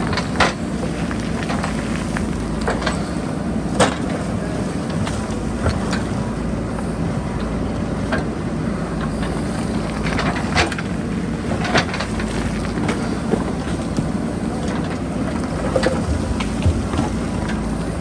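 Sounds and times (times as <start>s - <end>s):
backhoe diesel engine running: 0.0s - 18.0s
bucket knocks and clanks on rocks: 15.3s - 17.9s.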